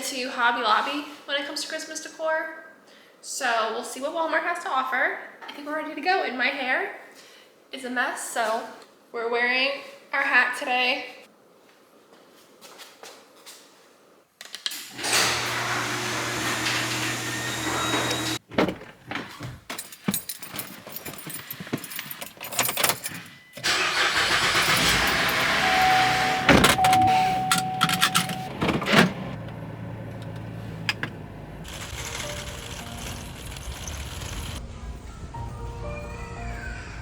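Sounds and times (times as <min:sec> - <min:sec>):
keys jangling and clicking: 0:19.7 - 0:23.5, 0:24.6 - 0:25.7, 0:26.6 - 0:28.5
car engine and road noise: 0:23.6 - 0:36.1
steady beep: 0:25.6 - 0:28.5.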